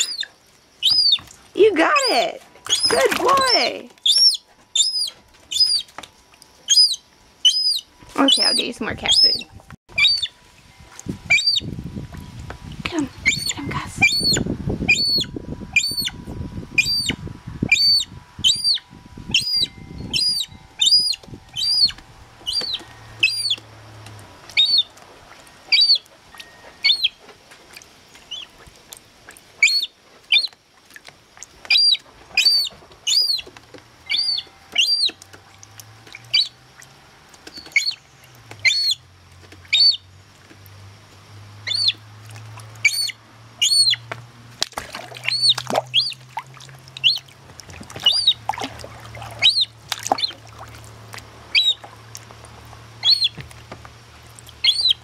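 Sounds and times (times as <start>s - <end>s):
gull chick piping: 0.0s - 6.0s, 6.6s - 10.3s, 11.3s - 11.7s, 13.2s - 16.2s, 16.8s - 23.6s, 24.5s - 24.9s, 26.8s - 27.2s, 34.1s - 35.3s, 36.2s - 36.6s, 38.6s - 39.0s, 41.6s - 42.0s, 42.8s - 44.0s, 45.2s - 46.2s, 47.0s - 47.3s, 48.0s - 50.4s, 51.5s - 51.9s, 53.0s - 53.4s, 54.6s - 55.0s.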